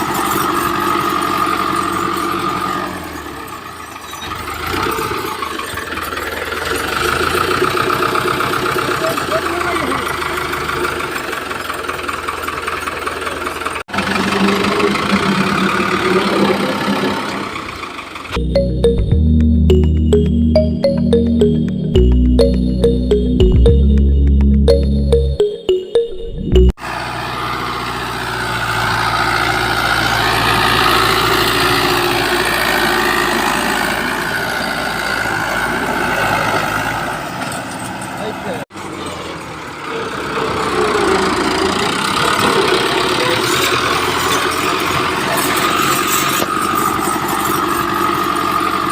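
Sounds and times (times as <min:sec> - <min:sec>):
engine knocking beat: 0:05.2 - 0:18.4, 0:21.5 - 0:25.4
music: 0:18.4 - 0:26.7.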